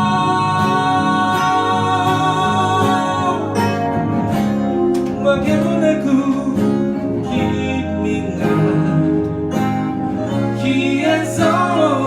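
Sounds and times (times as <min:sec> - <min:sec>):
guitar accompaniment: 0:00.0 - 0:12.0.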